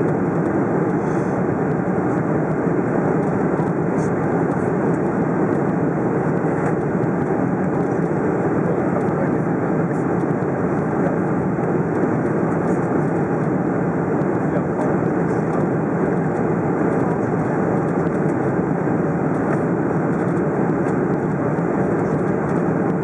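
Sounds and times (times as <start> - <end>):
airliner cabin engine noise: 0.0 - 23.0.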